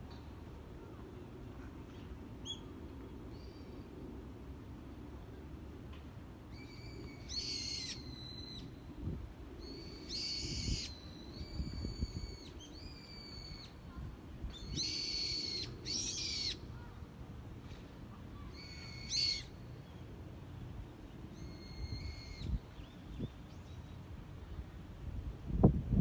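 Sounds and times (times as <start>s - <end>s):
bird harsh calls: 14.8s - 16.6s.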